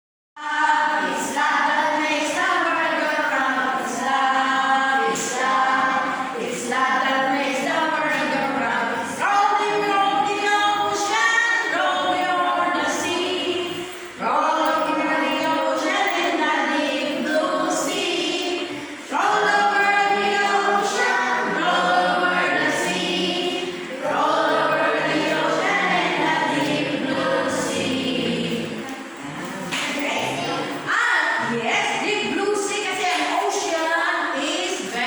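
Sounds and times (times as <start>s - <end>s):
group of voices singing: 0.4s - 30.7s.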